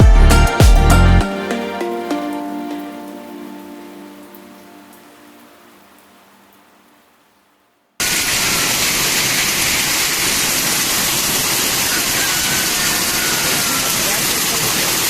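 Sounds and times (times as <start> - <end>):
heavy hail and rain: 8.0 - 15.0.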